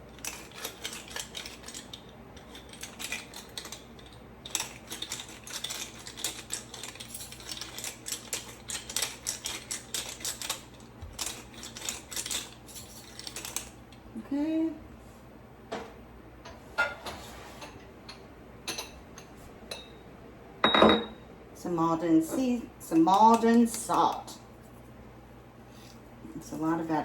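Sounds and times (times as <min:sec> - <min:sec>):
pepper grinder grinding peppercorns: 0:00.0 - 0:14.0.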